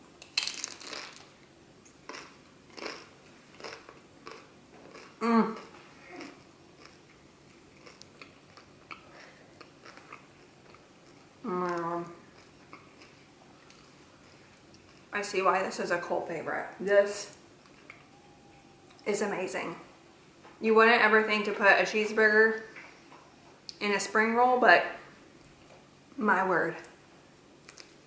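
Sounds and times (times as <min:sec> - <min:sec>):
crunchy bite and chewing: 0:00.3 - 0:01.4, 0:02.0 - 0:11.3
person humming mm: 0:05.2 - 0:06.4, 0:11.4 - 0:12.1.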